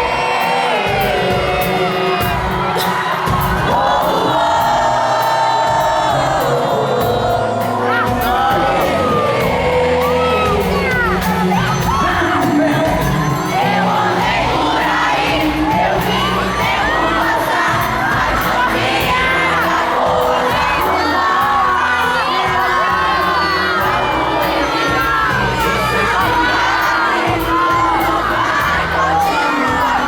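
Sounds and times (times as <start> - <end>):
crowd cheering and singing along: 0.0 - 30.0
crowd screaming: 0.0 - 30.0
drum beat: 0.0 - 30.0
live pop band playing: 0.0 - 30.0
person singing: 0.0 - 30.0.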